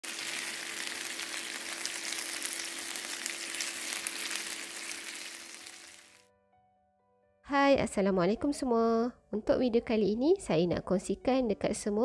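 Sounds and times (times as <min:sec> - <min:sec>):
chicken sizzling in hot oil: 0:00.0 - 0:06.3.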